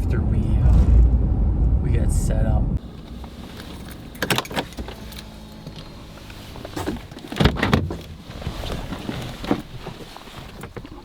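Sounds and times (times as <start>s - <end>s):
knocks and clunks: 2.8s - 11.0s
pickup truck engine humming: 2.8s - 11.0s.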